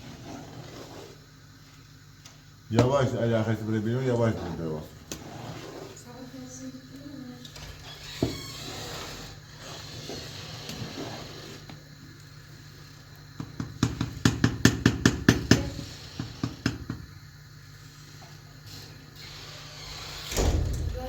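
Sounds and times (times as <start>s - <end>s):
sharp knocks: 20.3s - 21.0s.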